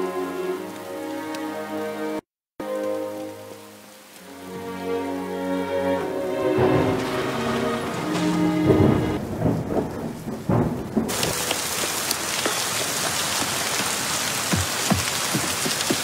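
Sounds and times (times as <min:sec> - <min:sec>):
heavy rain falling: 0:02.6 - 0:16.0
loud raindrops: 0:02.6 - 0:16.0
thunder rumbling: 0:06.3 - 0:16.0.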